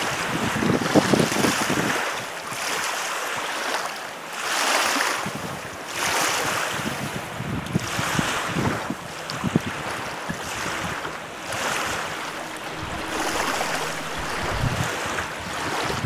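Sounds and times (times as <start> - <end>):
wind buffeting microphone: 6.8 - 16.0
lake waves splashing: 7.8 - 15.9.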